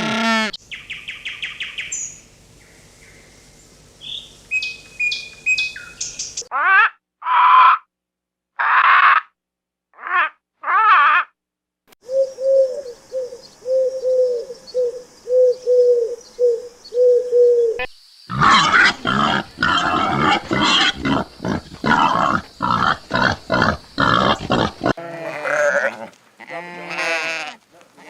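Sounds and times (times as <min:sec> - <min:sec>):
rapid harsh animal calls: 0:18.3 - 0:25.9.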